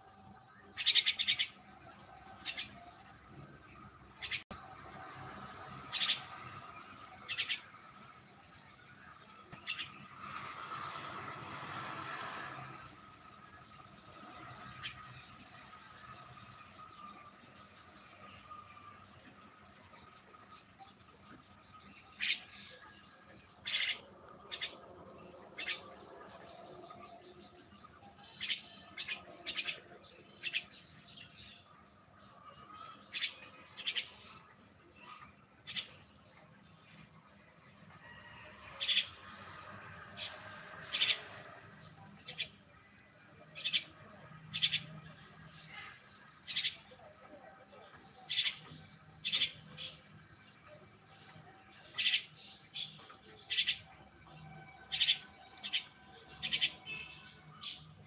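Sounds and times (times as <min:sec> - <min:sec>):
bird chirping: 0:38.8 - 0:58.0.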